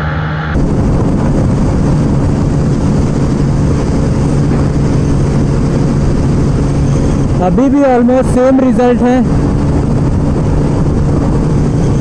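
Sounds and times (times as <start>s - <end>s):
motorcycle engine hum: 0.0s - 12.0s
wind rush on microphone: 0.0s - 12.0s.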